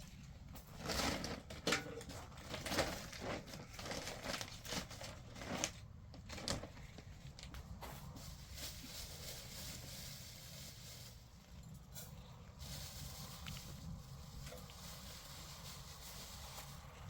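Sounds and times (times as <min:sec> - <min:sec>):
rustling and crinkling handling noise: 0:00.0 - 0:17.0.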